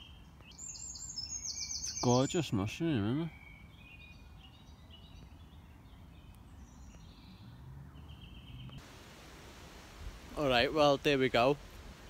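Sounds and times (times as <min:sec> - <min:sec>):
birds chirping and trilling: 0:00.0 - 0:08.8.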